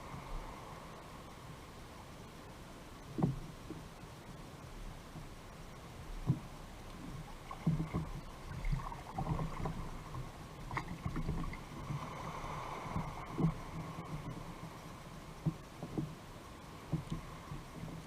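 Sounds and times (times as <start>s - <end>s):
light knocks against hull: 3.1s - 3.8s, 6.2s - 11.6s, 12.9s - 14.7s, 15.4s - 16.2s
small water splashes: 7.2s - 14.5s.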